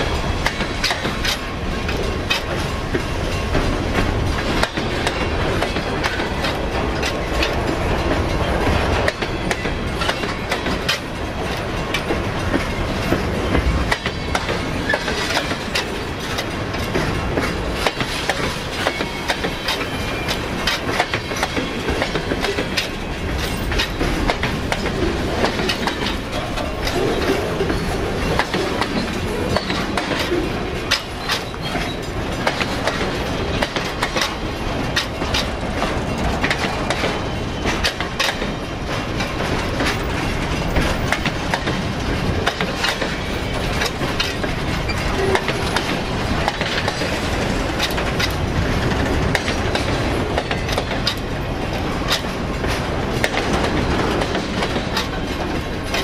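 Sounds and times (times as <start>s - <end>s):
freight train wheels clicking: 0.0s - 56.0s.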